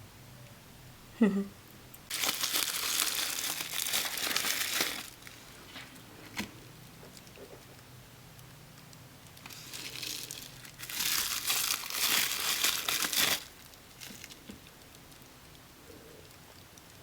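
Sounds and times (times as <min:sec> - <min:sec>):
packaging crinkling: 0:02.1 - 0:07.4, 0:09.3 - 0:15.2.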